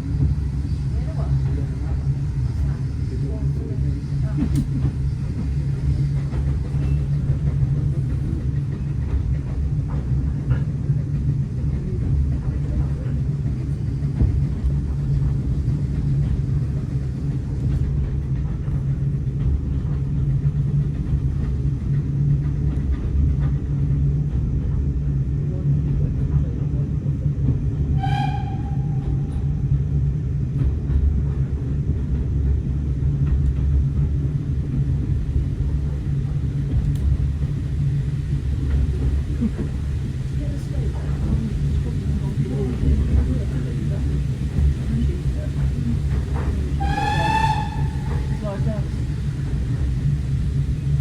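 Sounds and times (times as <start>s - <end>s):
train rumbling on the line: 0.0s - 51.0s
high-pitched train toot: 27.9s - 29.5s, 46.8s - 48.9s.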